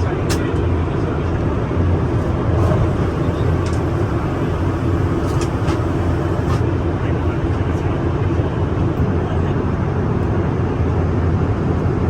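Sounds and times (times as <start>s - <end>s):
airliner cabin engine rumble: 0.0s - 12.0s
faint clicks in cabin: 0.2s - 0.7s, 3.3s - 4.0s, 5.2s - 6.6s.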